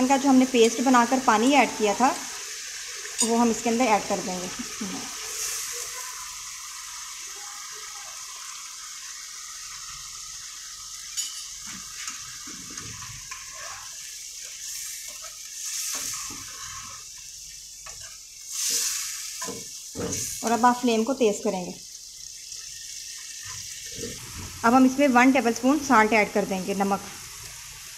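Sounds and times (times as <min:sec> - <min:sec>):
chicken sizzling in hot oil: 0:00.0 - 0:27.9
ladle stirring and knocking pan: 0:11.1 - 0:17.0, 0:17.8 - 0:20.4.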